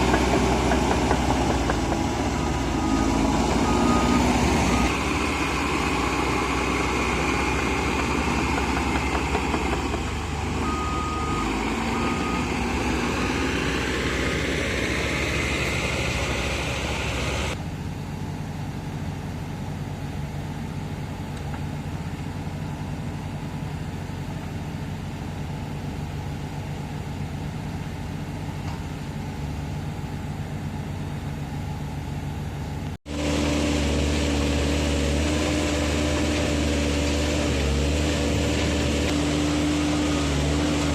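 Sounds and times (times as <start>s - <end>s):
heavy machine diesel engines revving: 0.0s - 17.6s, 21.1s - 40.9s
short beeps: 10.6s - 12.5s.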